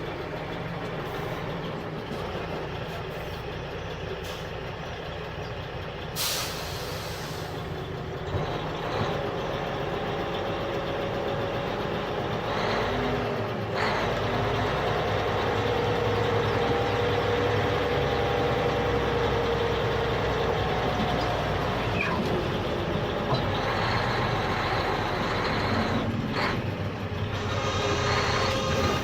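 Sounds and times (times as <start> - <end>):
diesel engine running: 0.0 - 29.0
whining tone: 27.3 - 29.0.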